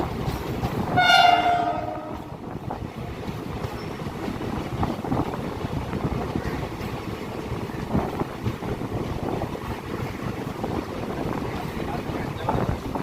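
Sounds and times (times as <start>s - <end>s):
train rumbling and clattering: 0.0s - 13.0s
locomotive horn blast: 0.9s - 2.4s.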